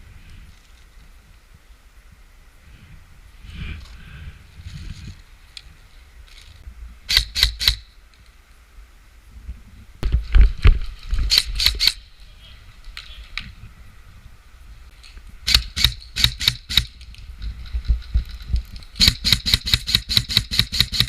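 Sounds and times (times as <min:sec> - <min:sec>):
airsoft gun shots: 0:07.1 - 0:07.8, 0:15.5 - 0:16.9, 0:19.0 - 0:21.0.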